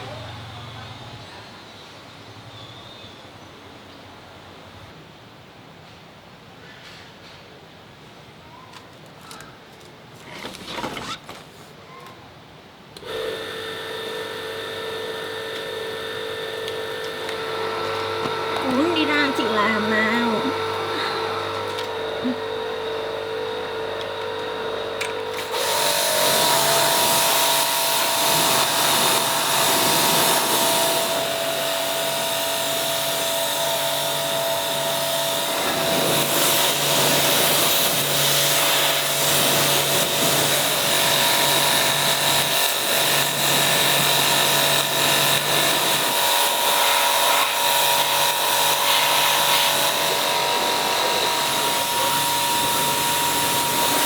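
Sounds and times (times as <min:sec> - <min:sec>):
power tool motor whining: 0:13.0 - 0:54.0.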